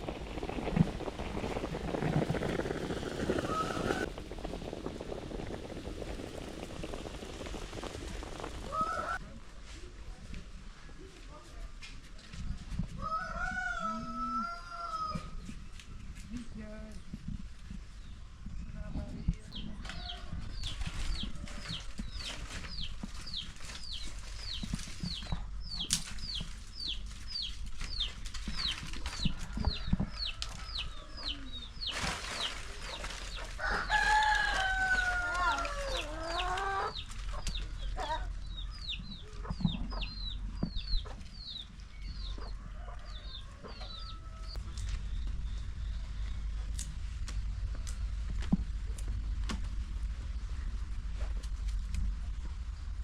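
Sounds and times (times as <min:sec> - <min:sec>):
rooster crowing: 0:08.7 - 0:09.2, 0:13.0 - 0:15.3, 0:33.6 - 0:36.9, 0:42.5 - 0:44.6
chicks peeping: 0:19.6 - 0:33.6, 0:34.2 - 0:46.3.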